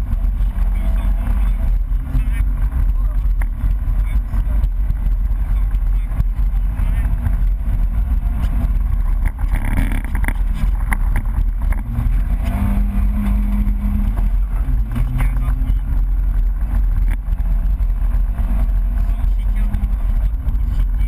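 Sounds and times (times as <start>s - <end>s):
rally car engine running hard: 0.0s - 21.0s
road and wind rumble: 0.0s - 21.0s.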